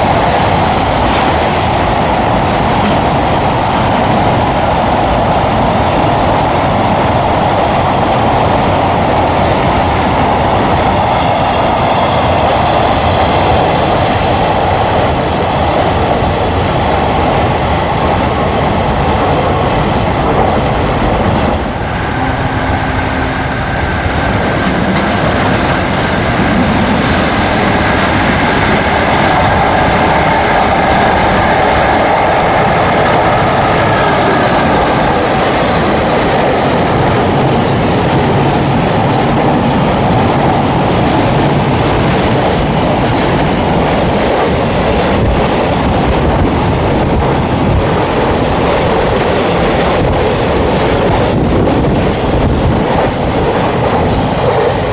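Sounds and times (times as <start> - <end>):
electric locomotive whine: 0.0 - 54.9
freight train wheels on rails: 0.0 - 54.9.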